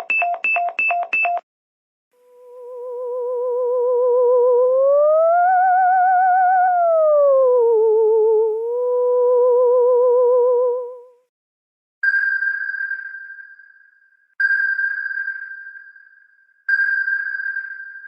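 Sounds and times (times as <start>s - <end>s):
wavering electronic tone: 2.2s - 11.0s.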